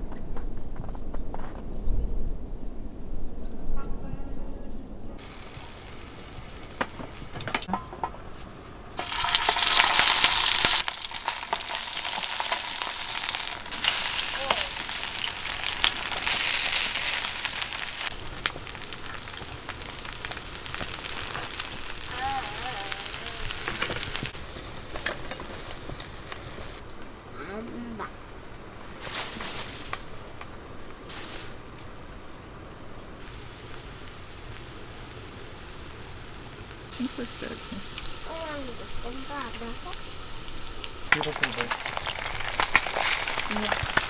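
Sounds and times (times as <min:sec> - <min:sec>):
food sizzling in a hot pan: 0:05.2 - 0:08.0, 0:09.0 - 0:26.9, 0:33.2 - 0:44.0.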